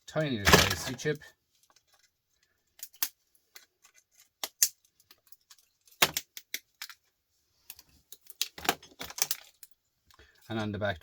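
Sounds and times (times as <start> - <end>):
clicks and clinks of scrap parts: 0.4 - 1.0, 1.6 - 7.0, 7.7 - 9.8.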